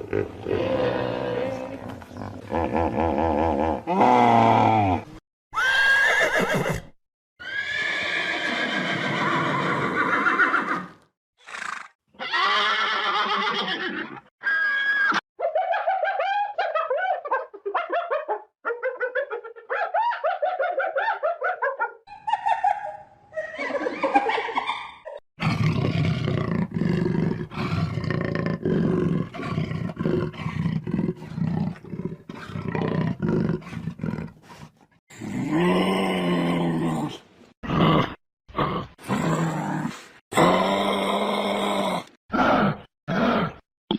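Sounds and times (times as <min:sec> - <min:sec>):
roar-like animal calls: 0:00.0 - 0:05.9.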